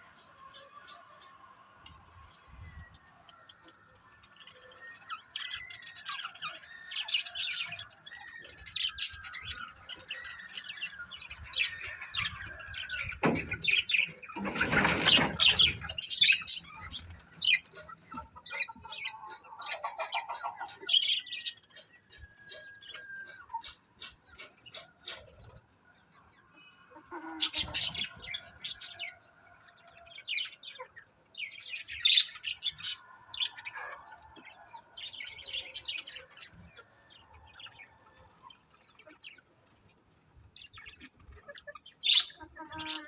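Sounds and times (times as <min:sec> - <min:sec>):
budgerigars chattering: 0:05.1 - 0:25.3.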